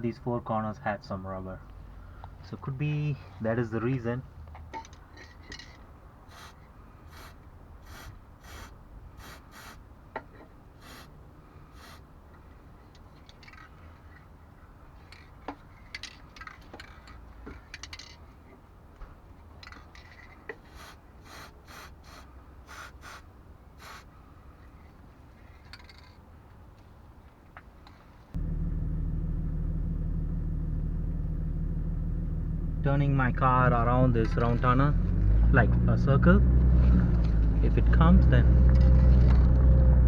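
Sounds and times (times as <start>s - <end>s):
aerosol can hissing puffs: 6.3s - 9.8s, 11.8s - 12.0s, 20.7s - 23.2s, 23.8s - 24.1s
low background rumble: 28.4s - 40.0s.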